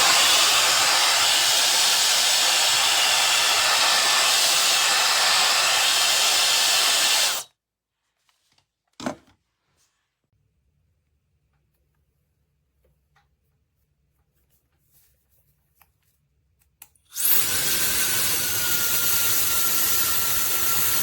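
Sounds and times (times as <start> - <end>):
hair dryer blowing: 0.0 - 7.5, 17.2 - 21.0.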